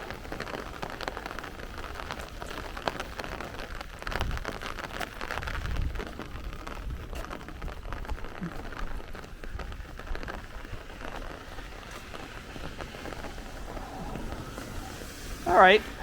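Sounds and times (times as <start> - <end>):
heavy rain on street: 0.0 - 16.0
low rumble: 11.0 - 16.0.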